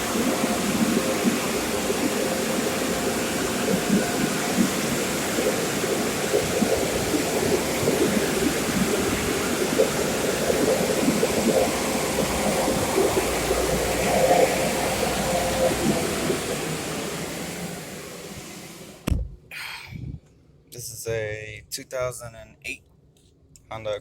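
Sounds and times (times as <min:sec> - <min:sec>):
car wash water jets spraying: 0:00.0 - 0:19.1.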